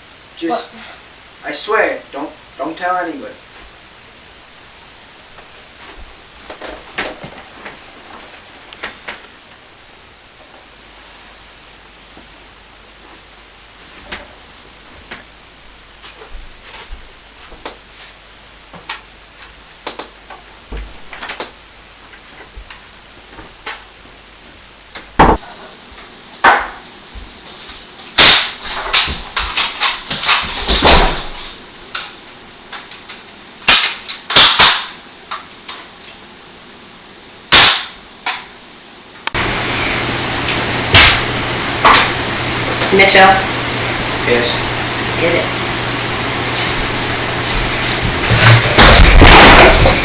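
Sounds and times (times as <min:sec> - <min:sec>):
loud bang: 0:48.2 - 0:50.0.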